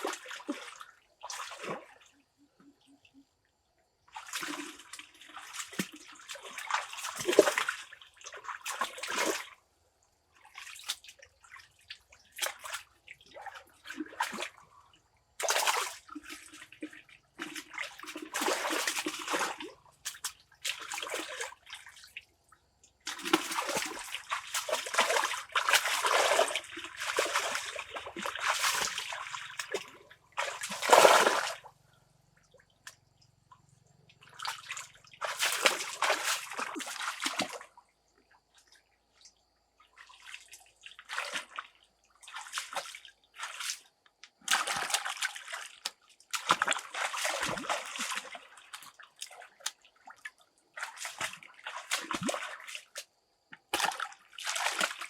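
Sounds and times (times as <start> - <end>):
water splashing and sloshing: 0.0 - 3.3, 3.9 - 55.0.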